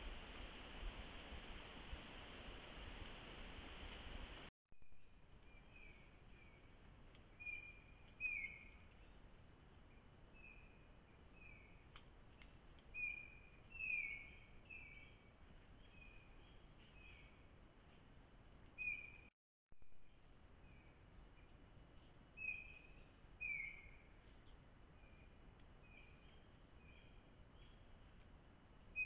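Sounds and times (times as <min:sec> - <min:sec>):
forest background hiss: 0:00.0 - 0:19.3, 0:20.0 - 0:29.0
bird calling: 0:07.4 - 0:09.2, 0:10.4 - 0:15.2, 0:22.4 - 0:25.3.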